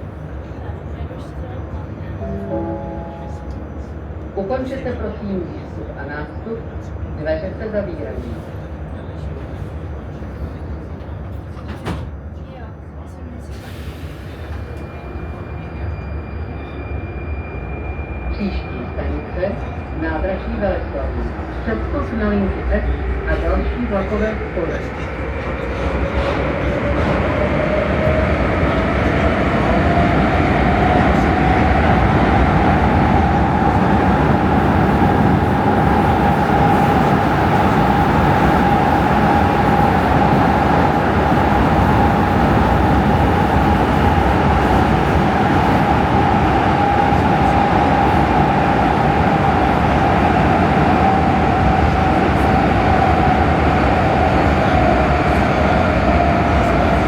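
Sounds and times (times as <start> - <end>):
wheels rumbling on rail: 19.6 - 57.0.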